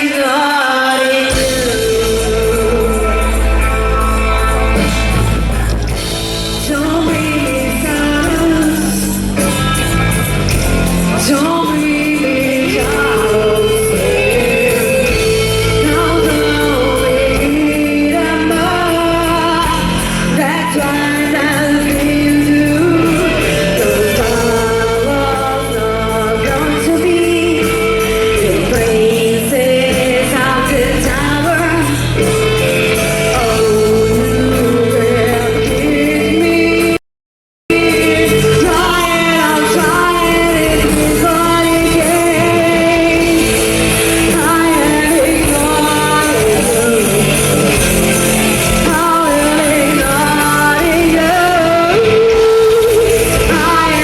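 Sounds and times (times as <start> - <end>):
live rock band playing: 0.0 - 37.0, 37.7 - 54.0
woman singing: 0.0 - 37.0, 37.7 - 54.0.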